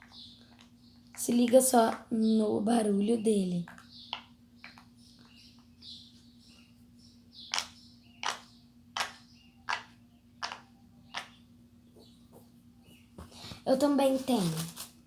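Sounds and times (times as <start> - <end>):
pop-it toy bubbles popping: 9.0 - 11.4.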